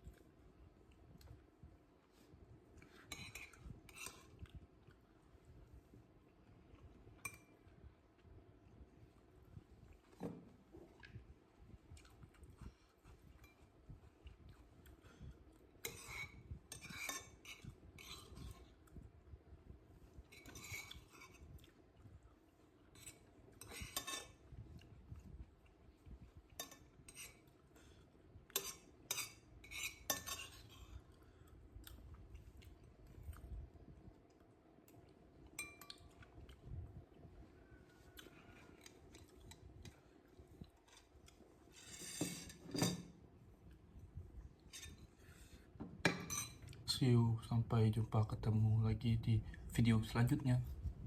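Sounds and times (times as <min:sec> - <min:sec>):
cutlery clinking on a plate: 0:23.0 - 0:24.4, 0:28.5 - 0:30.7, 0:35.6 - 0:36.0, 0:41.8 - 0:43.2, 0:46.0 - 0:46.7.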